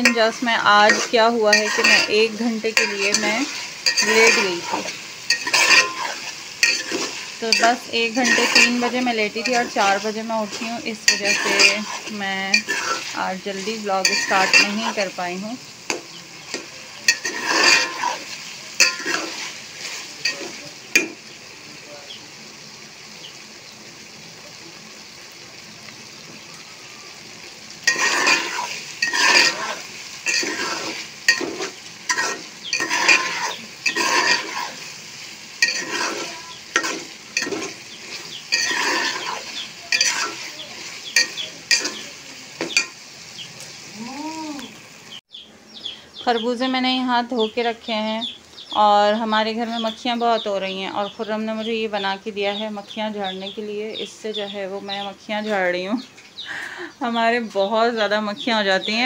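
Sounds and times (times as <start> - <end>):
steel spoon scraping a pot: 0.0 - 15.2, 16.5 - 21.2, 27.8 - 43.0
vegetables sizzling in a pot: 0.0 - 59.0.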